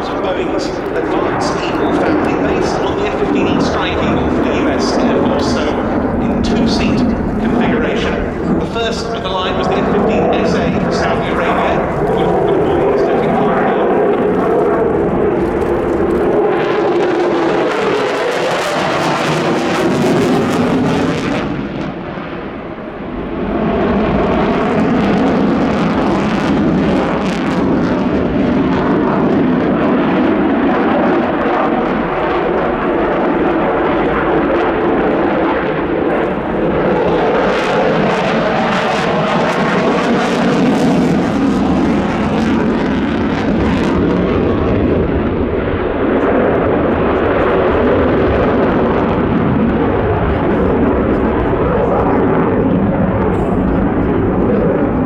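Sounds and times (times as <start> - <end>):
loud jet engine noise: 0.0 - 55.0.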